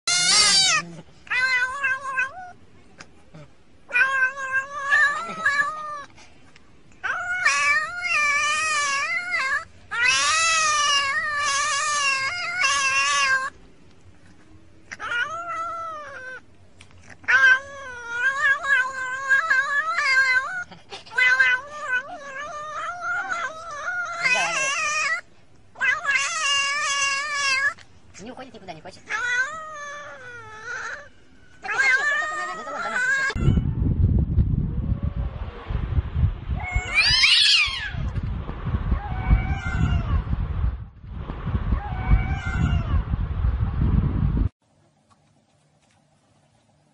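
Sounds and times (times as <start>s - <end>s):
cat yowling: 0.1s - 2.6s, 3.9s - 6.1s, 7.0s - 13.6s, 14.9s - 16.4s, 17.2s - 27.8s, 29.1s - 33.8s, 36.6s - 38.1s, 38.9s - 40.3s, 41.7s - 43.0s.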